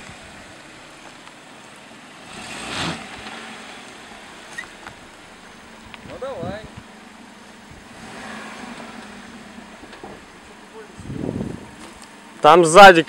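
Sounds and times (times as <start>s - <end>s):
car creeping over rocky track: 0.0s - 13.0s
car engine running at low speed: 0.0s - 13.0s.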